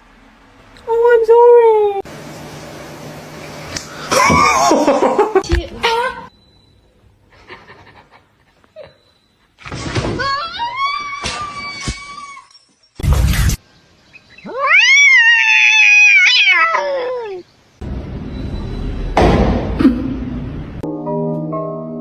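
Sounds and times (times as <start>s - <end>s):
cat yowling: 14.4s - 17.5s.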